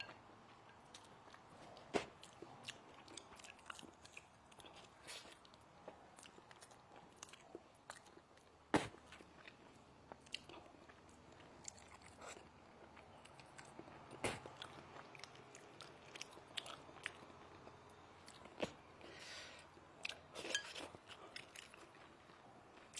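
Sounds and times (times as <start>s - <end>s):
person chewing food: 0.0s - 22.9s.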